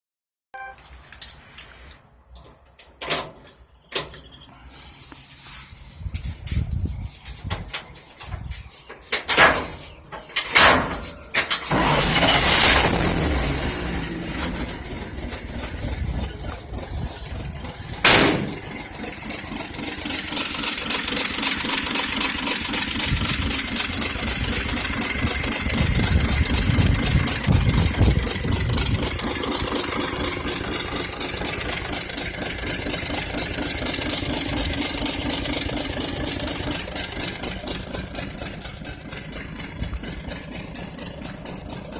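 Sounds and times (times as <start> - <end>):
engine idling with misfire: 9.8 - 41.9
engine cranking and starting: 10.3 - 41.9.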